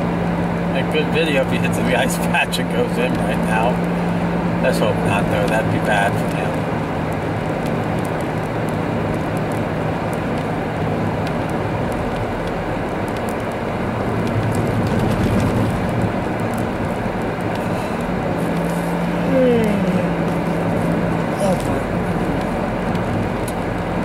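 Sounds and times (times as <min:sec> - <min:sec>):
low engine hum: 0:00.0 - 0:24.0
tyre rumble on snowy road: 0:00.0 - 0:24.0
light ticks: 0:22.4 - 0:23.7.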